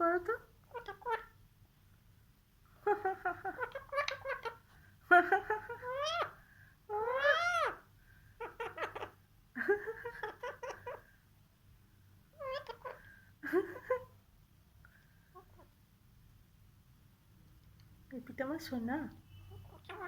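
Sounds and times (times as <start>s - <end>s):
pet bird squawking: 0.3s - 1.4s, 2.9s - 9.2s, 9.9s - 11.1s, 12.4s - 13.2s, 19.3s - 20.0s.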